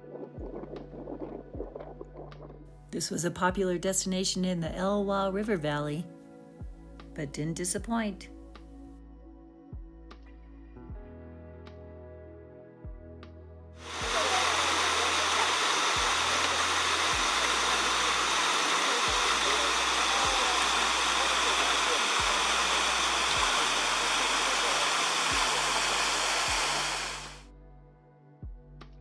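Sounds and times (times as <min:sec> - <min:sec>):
soft background music: 0:00.0 - 0:29.0
waterfall rushing: 0:13.9 - 0:27.4.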